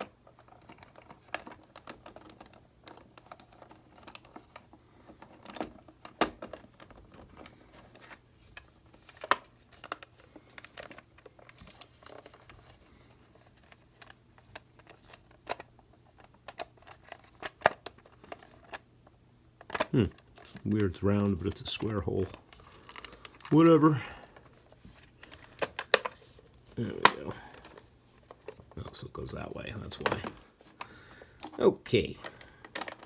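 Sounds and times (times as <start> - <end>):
plastic and metal parts clicking: 0.0 - 18.8, 19.6 - 33.0
faint steady hum: 0.0 - 33.0.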